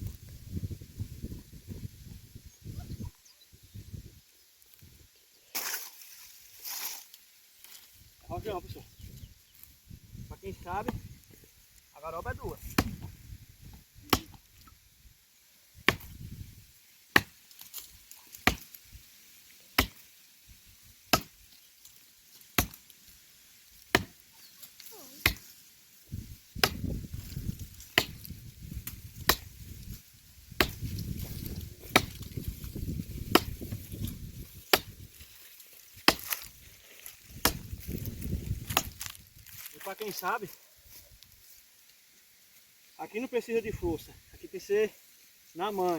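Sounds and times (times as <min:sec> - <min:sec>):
axe chopping wood: 0:10.8 - 0:11.1, 0:12.6 - 0:13.2, 0:14.1 - 0:14.7, 0:15.8 - 0:16.2, 0:17.1 - 0:18.8, 0:19.7 - 0:20.1, 0:21.1 - 0:21.5, 0:22.5 - 0:22.9, 0:23.8 - 0:24.3, 0:25.2 - 0:25.5, 0:26.5 - 0:27.0, 0:27.8 - 0:29.6, 0:30.6 - 0:35.1, 0:36.0 - 0:36.5, 0:37.4 - 0:37.9, 0:38.6 - 0:39.1.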